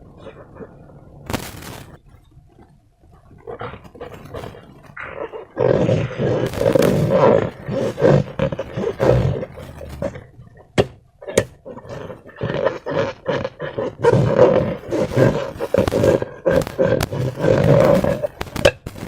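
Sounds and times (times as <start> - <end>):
sharp clicks: 15.7 - 19.0.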